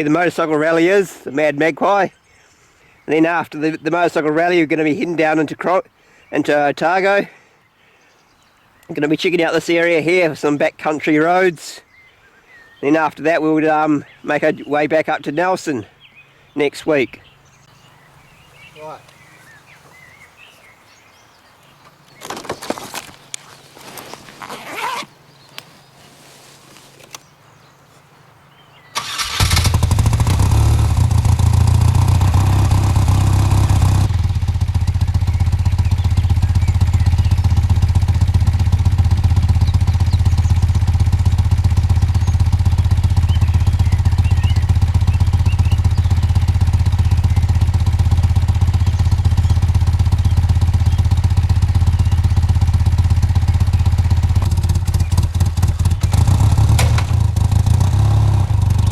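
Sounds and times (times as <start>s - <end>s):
motorcycle engine running: 29.0s - 58.9s.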